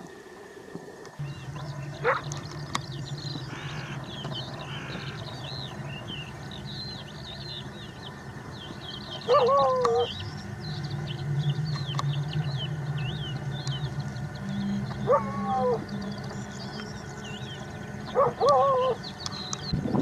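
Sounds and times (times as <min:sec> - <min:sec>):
steady low hum: 0:00.0 - 0:20.0
small birds chirping: 0:01.2 - 0:20.0
loud drawn-out animal call: 0:03.1 - 0:06.8, 0:09.1 - 0:10.2, 0:14.4 - 0:16.1, 0:18.0 - 0:19.1.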